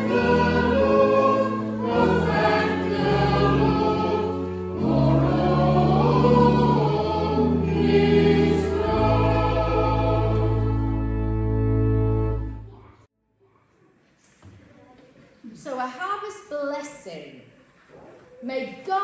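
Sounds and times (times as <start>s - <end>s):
choir and congregation singing hymn: 0.0s - 12.4s
organ chords: 0.0s - 12.8s.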